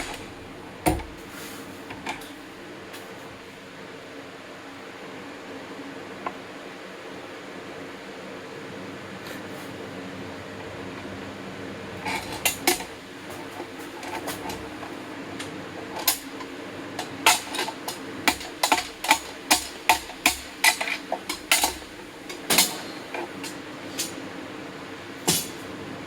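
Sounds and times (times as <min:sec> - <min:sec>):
hammer striking metal: 0:25.3 - 0:25.7.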